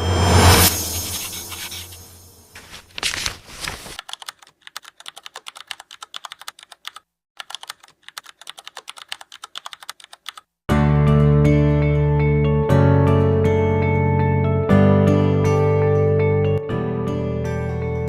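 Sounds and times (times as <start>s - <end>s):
computer keyboard typing: 4.0s - 10.5s
music: 10.7s - 18.0s.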